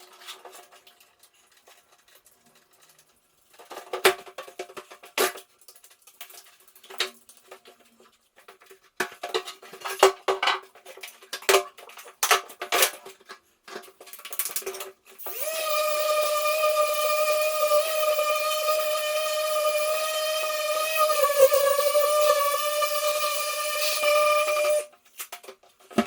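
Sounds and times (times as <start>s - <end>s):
electric power tool whine: 15.2s - 24.9s.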